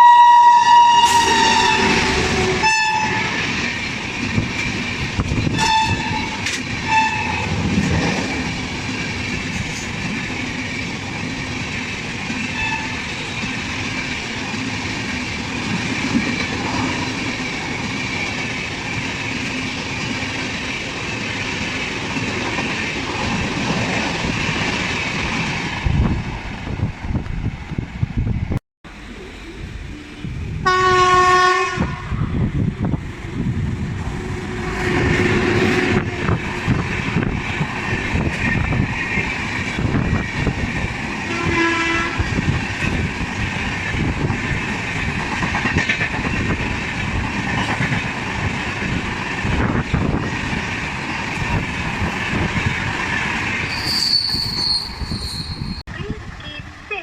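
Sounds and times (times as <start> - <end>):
train horn blasts: 0.0 - 3.5, 5.5 - 7.6, 12.6 - 13.0, 30.6 - 32.3, 41.3 - 42.4
train rumble: 0.0 - 57.0
wheels clattering on rails: 3.2 - 26.1, 35.0 - 57.0.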